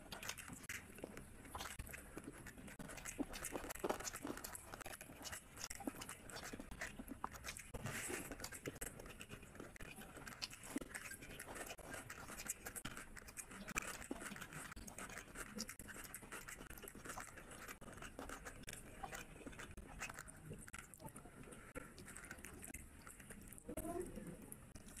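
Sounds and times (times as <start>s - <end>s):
fingers working rice on a plate: 0.0s - 23.6s
small irregular clicks: 0.0s - 25.0s
wet chewing and lip smacking: 0.0s - 25.0s.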